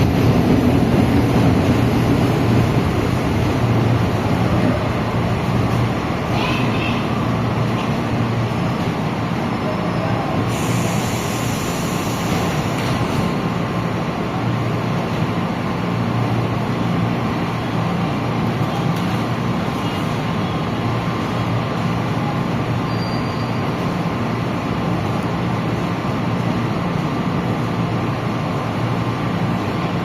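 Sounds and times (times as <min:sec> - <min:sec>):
metro train rumble: 0:00.0 - 0:30.0.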